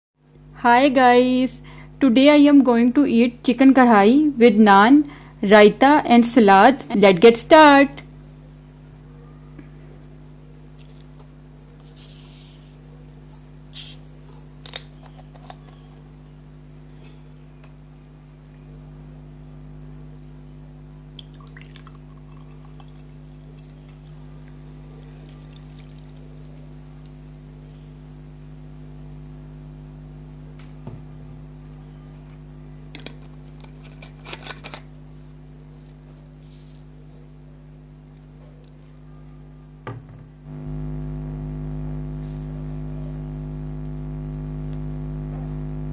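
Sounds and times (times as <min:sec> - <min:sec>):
steady electrical hum: 0:00.2 - 0:45.9.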